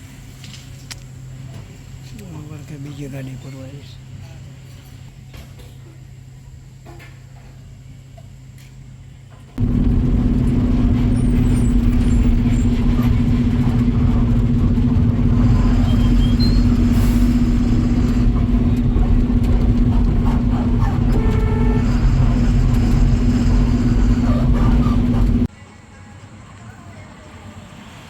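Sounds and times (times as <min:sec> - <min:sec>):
road rumble: 0:09.6 - 0:25.5
truck engine drone: 0:09.6 - 0:25.5
truck horn: 0:09.6 - 0:25.5.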